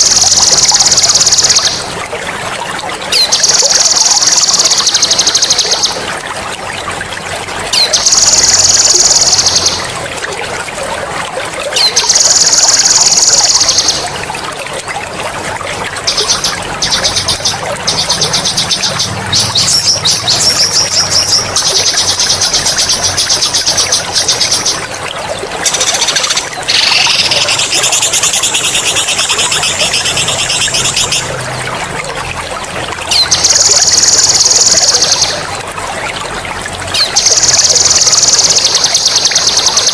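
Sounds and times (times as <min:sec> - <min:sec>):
trickling water: 0:00.0 - 0:39.9
songbird trilling: 0:16.1 - 0:24.8, 0:25.7 - 0:31.3.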